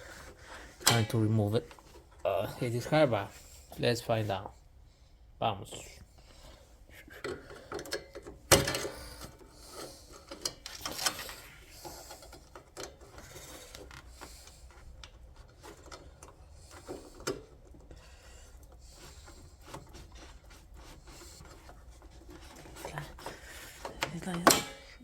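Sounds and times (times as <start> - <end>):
clicks and rattles of tools: 0.7 - 2.2, 7.2 - 17.9, 21.4 - 25.0.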